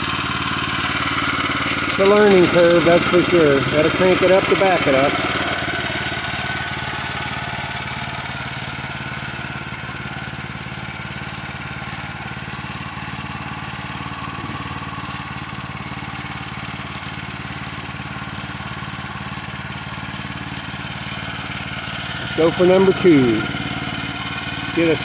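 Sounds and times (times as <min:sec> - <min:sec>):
small gasoline engine running: 0:00.0 - 0:25.0.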